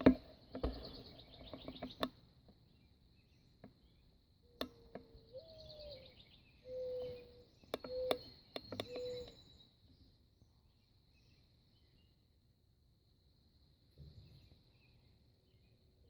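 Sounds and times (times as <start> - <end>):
dove cooing: 5.3 - 8.2
sharp clicks: 7.0 - 9.4.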